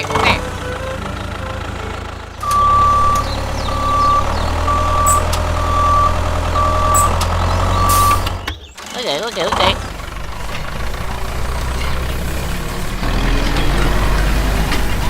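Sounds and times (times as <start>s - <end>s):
low engine rumble: 0.0s - 15.0s
reversing alarm beeping: 2.4s - 8.4s.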